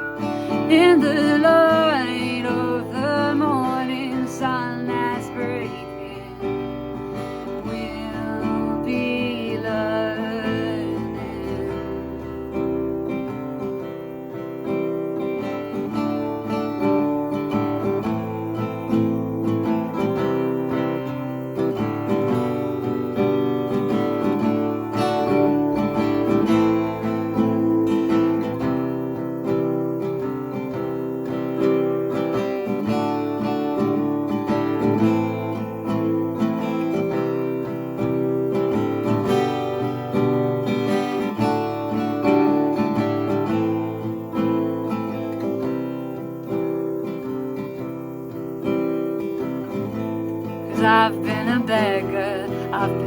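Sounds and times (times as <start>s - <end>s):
acoustic guitar strumming chords: 0.0s - 53.0s.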